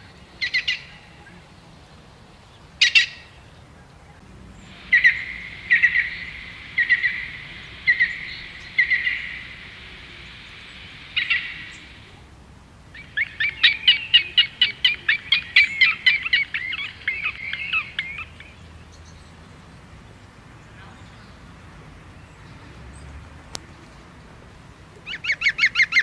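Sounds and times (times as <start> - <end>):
steady hiss: 0.0 - 26.0
loud bird chattering: 2.8 - 3.4, 4.6 - 12.2, 12.9 - 18.6, 25.0 - 26.0
bird two-part call: 4.6 - 12.2, 12.9 - 18.5.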